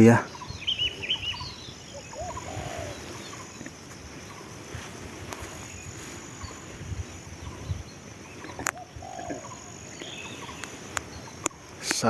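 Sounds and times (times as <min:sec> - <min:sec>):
doves cooing: 0:00.0 - 0:12.0
outdoor background hiss: 0:00.0 - 0:12.0.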